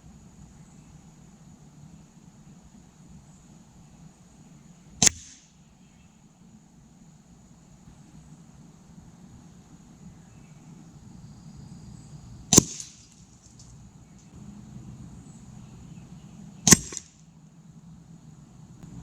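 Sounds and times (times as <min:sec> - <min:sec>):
air rifle shots: 0:05.0 - 0:05.5, 0:12.5 - 0:13.2, 0:16.6 - 0:17.2.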